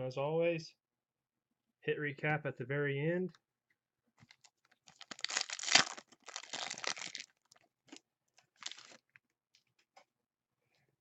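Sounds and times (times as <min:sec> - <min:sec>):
foil wrapper tearing and crinkling: 0:04.9 - 0:07.6, 0:08.6 - 0:09.0.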